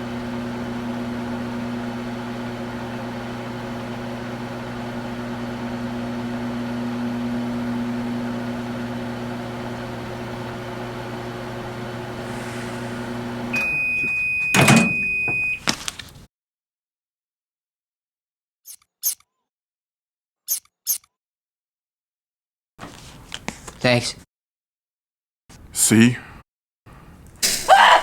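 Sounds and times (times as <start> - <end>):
microwave oven humming: 0.0 - 16.2
long beep: 13.5 - 15.6
loud clunk: 14.5 - 15.4.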